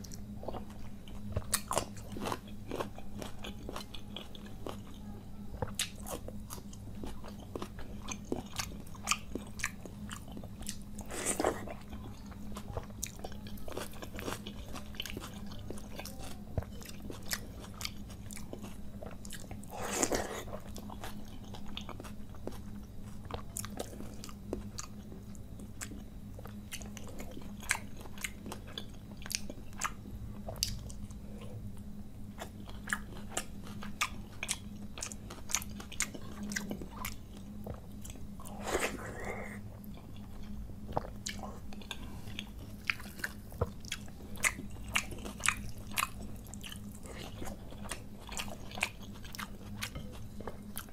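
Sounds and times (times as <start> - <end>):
faint steady hum: 0.0 - 50.9
wet chewing and lip smacks: 32.4 - 50.9.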